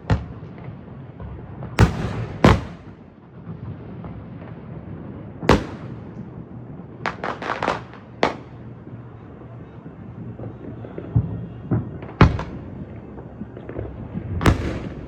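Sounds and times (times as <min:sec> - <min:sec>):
fireworks bangs: 0:00.0 - 0:15.0
sharp firework cracks: 0:01.8 - 0:03.0, 0:05.5 - 0:06.2, 0:07.0 - 0:08.6, 0:14.4 - 0:15.0.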